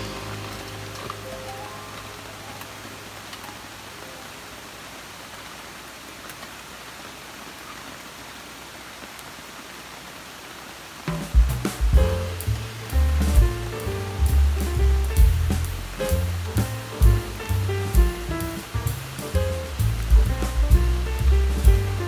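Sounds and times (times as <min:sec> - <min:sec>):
campfire hissing: 0:00.0 - 0:04.0, 0:11.0 - 0:22.0
fire crackles and pops: 0:11.1 - 0:22.0.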